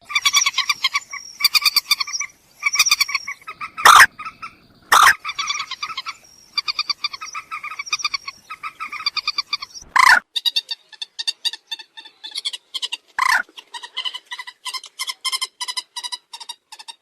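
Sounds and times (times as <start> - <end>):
loud harsh bird notes: 0.0 - 10.2
moorhen croaking calls: 0.0 - 10.6, 11.2 - 16.5.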